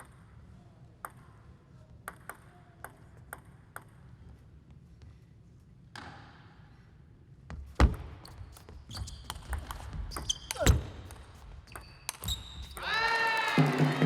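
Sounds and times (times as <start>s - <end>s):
shoe squeak: 8.2s - 12.8s
table tennis ball clicks: 9.3s - 12.8s.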